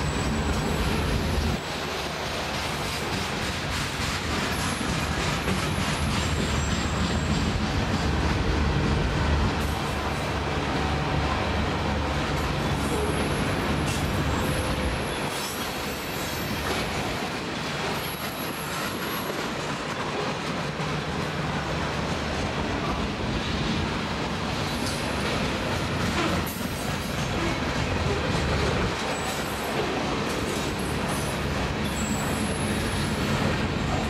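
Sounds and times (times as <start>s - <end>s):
freight train wheels rumbling: 0.0s - 34.0s
high-pitched wheel squeals: 30.8s - 33.3s.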